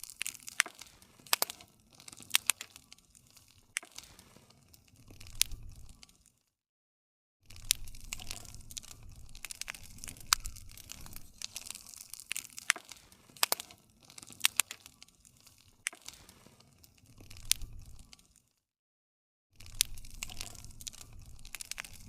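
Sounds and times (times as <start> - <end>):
wood fire crackling and popping: 0.0 - 6.4, 7.5 - 18.4, 19.6 - 22.0.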